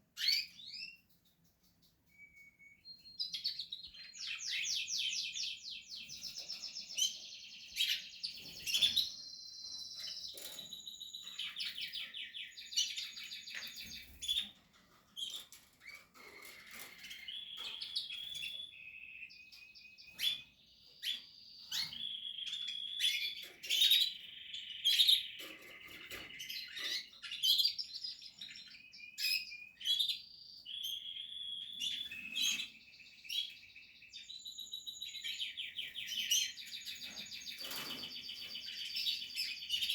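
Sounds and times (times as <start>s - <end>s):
canaries singing trills: 0.0s - 39.9s.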